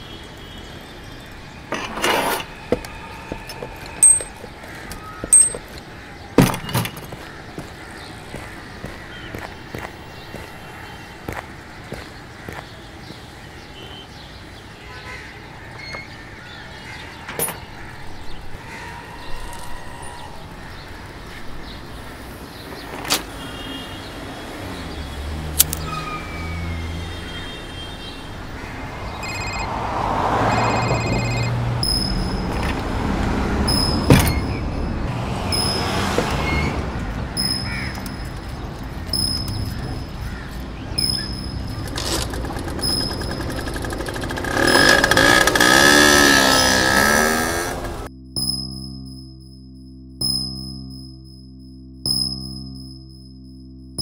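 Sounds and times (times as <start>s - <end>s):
vehicles passing: 0.0s - 48.1s
sharp clicks and knocks: 41.0s - 45.7s.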